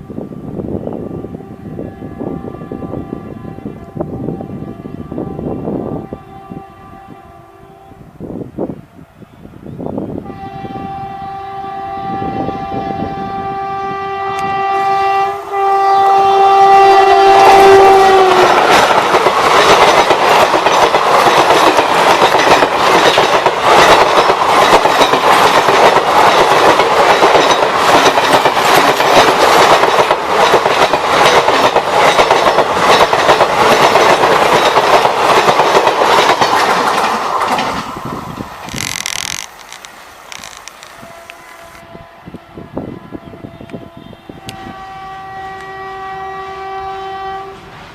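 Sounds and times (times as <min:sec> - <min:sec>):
locomotive horn blast: 0:00.0 - 0:08.2, 0:10.2 - 0:19.1, 0:40.4 - 0:47.7
train wheels clattering: 0:17.6 - 0:41.0.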